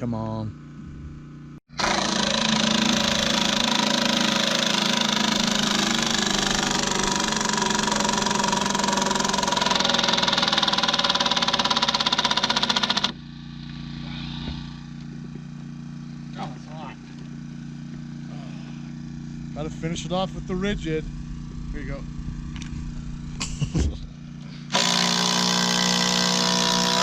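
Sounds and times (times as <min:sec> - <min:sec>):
low hum: 0:00.8 - 0:10.6, 0:13.6 - 0:24.7
impact driver hammering screws: 0:01.7 - 0:13.2, 0:24.7 - 0:27.0.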